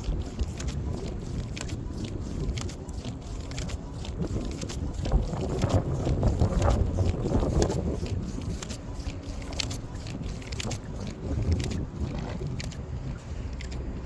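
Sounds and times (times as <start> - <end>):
sharp ticks: 0.0 - 14.0
wind buffeting microphone: 0.0 - 14.0.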